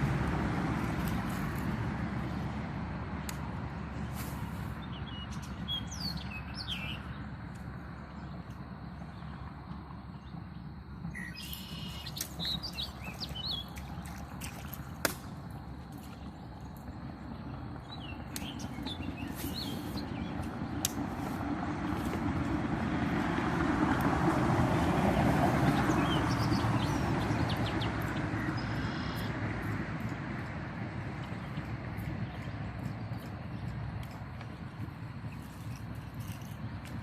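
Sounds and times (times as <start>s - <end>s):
birds chirping: 3.9s - 22.2s, 25.2s - 29.8s, 31.0s - 36.9s.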